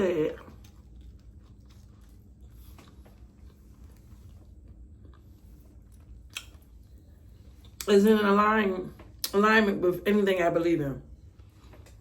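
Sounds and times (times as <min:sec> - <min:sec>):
person chewing: 0:00.2 - 0:07.9.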